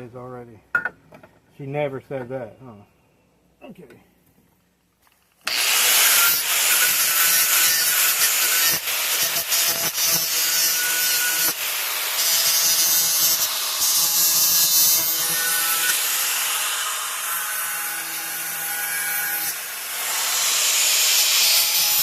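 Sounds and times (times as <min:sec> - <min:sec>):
angle grinder grinding metal pipe: 0:05.5 - 0:22.0.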